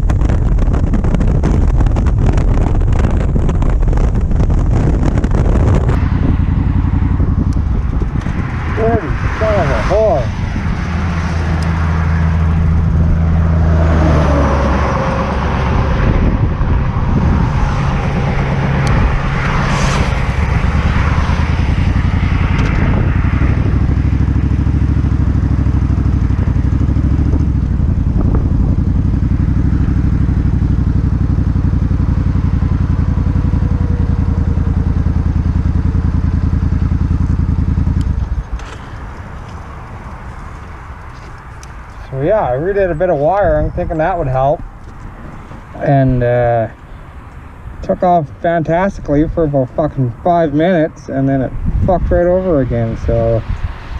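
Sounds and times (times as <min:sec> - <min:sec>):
motorcycle engine running: 0:00.0 - 0:13.8, 0:14.8 - 0:39.6.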